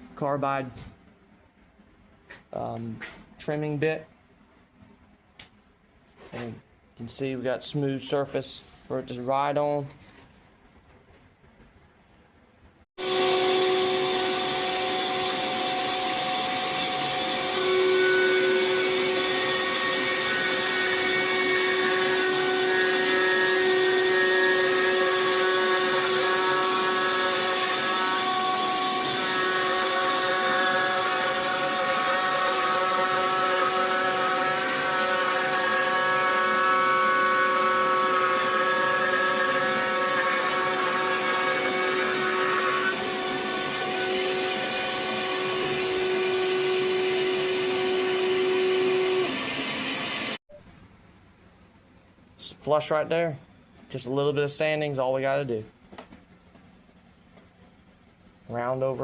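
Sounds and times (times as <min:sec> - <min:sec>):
router trimming wood with high whine: 0:13.0 - 0:50.4.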